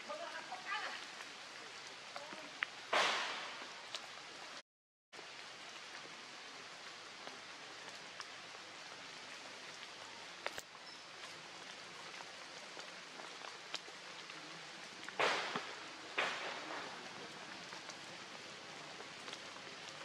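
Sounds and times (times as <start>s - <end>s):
rain on leaves: 0.0s - 4.6s, 5.2s - 20.0s
rustle: 0.0s - 4.6s, 5.2s - 20.0s
water drips: 5.2s - 20.0s.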